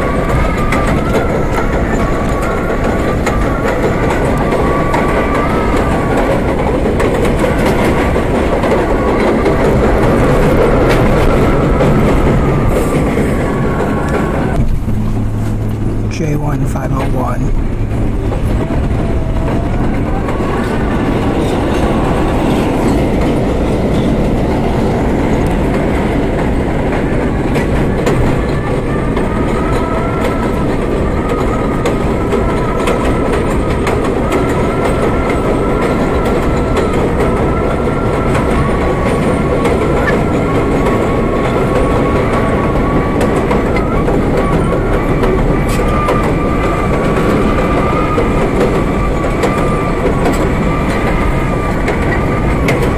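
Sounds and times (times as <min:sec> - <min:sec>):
subway wheels clacking: 0:00.0 - 0:52.9
train rumble: 0:00.0 - 0:52.9
high whine: 0:09.7 - 0:20.9.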